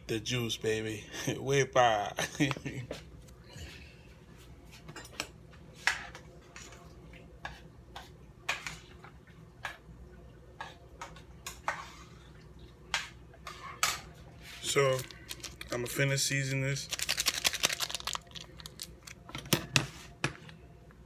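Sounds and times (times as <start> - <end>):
scraping or shaking: 16.9 - 19.0.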